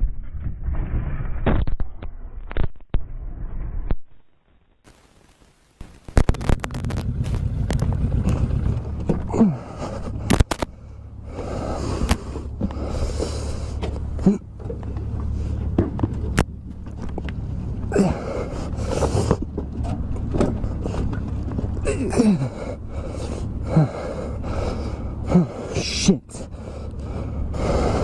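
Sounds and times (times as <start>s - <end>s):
road and wind noise: 0.0s - 4.2s, 5.8s - 28.0s
motorcycle engine hum: 5.8s - 28.0s
sharp clicks: 10.2s - 10.8s.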